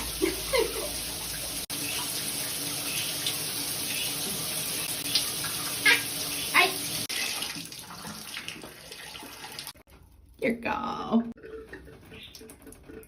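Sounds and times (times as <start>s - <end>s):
water running from a tap: 0.0s - 9.9s.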